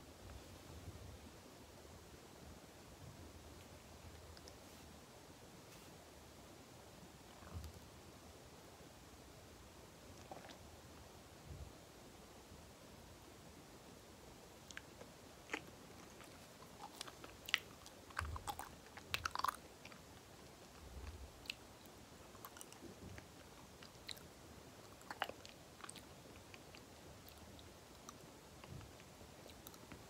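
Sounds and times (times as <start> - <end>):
person chewing soft food: 14.6 - 30.0.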